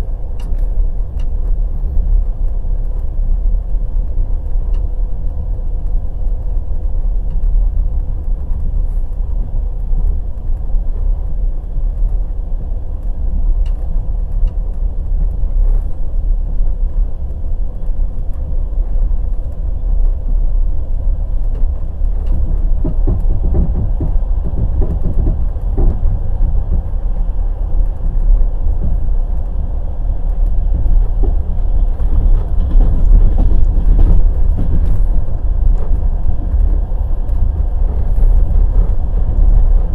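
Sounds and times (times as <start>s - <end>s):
train wheels rumbling on rails: 0.0s - 39.9s
wheels clacking over rail joints: 19.4s - 39.9s.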